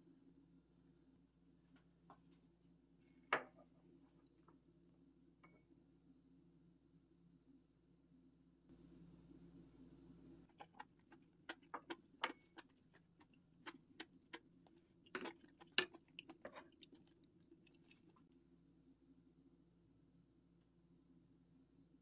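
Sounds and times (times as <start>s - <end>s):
faint chewing with mouth clicks: 10.4s - 18.4s.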